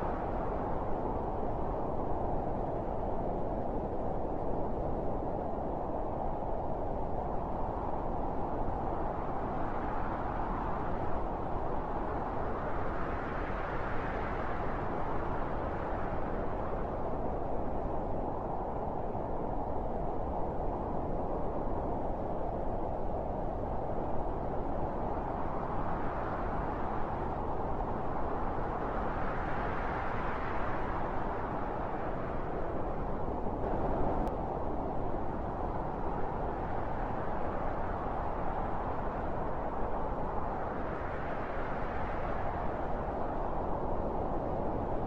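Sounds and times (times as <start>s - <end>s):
strong wind blowing: 22.7s - 45.0s.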